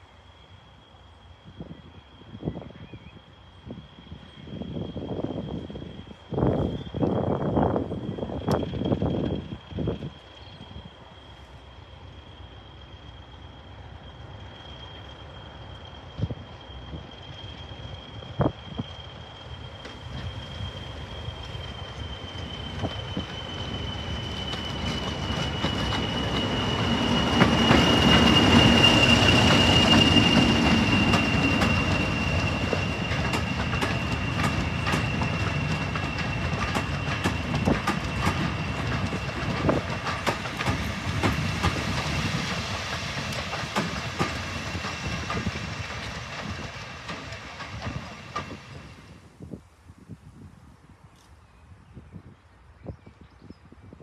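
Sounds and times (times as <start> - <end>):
locomotive engine rumble: 4.4 - 49.4
wheels clicking over rail joints: 24.3 - 48.6.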